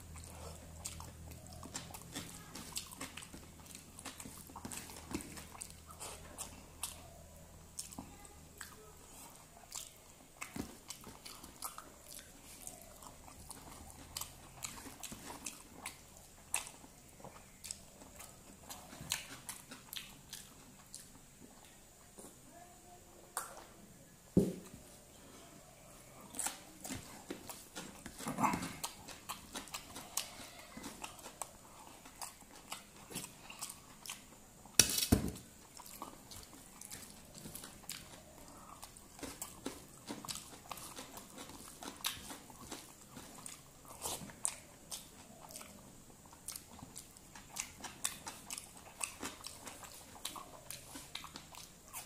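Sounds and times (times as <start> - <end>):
person chewing food: 0.0 - 22.4, 24.7 - 52.0.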